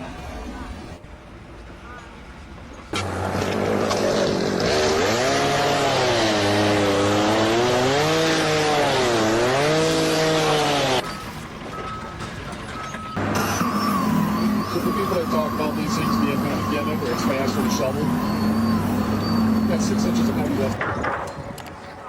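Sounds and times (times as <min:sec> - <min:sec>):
loud motor revving: 0:03.0 - 0:11.0, 0:13.2 - 0:20.8.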